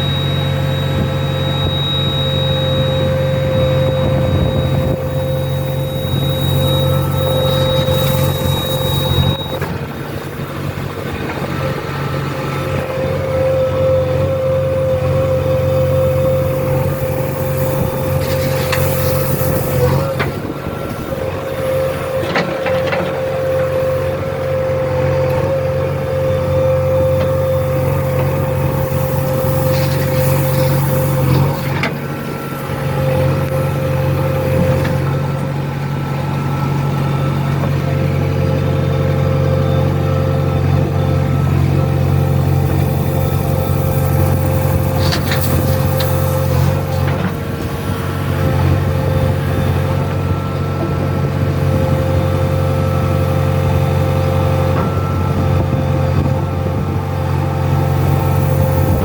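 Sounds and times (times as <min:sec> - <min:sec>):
diesel engine running: 0:00.0 - 0:59.0
high whine: 0:00.0 - 0:59.0.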